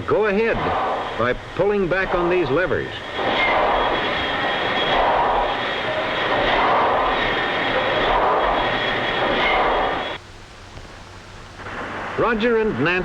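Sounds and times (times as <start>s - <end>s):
steamboat engine running: 0.0s - 10.2s
faint steady whine: 0.0s - 13.0s.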